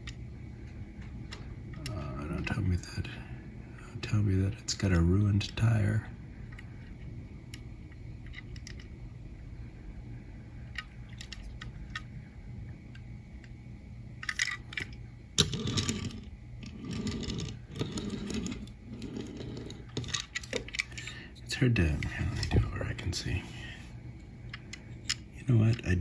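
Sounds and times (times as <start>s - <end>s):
toy van clicks and rattles: 8.2s - 8.9s, 10.8s - 12.1s, 14.2s - 21.1s.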